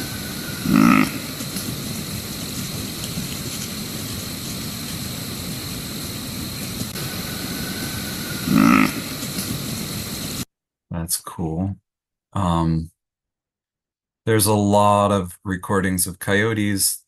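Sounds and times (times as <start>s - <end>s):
deer grunting: 0.0s - 5.4s, 6.6s - 10.3s
recording hiss: 0.0s - 10.5s.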